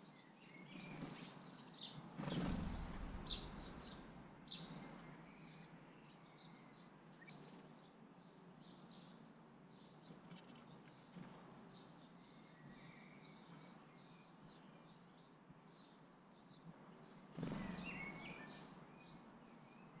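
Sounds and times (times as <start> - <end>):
small birds chirping: 0.0 - 20.0
bird wings flapping: 2.1 - 4.2, 17.4 - 18.1.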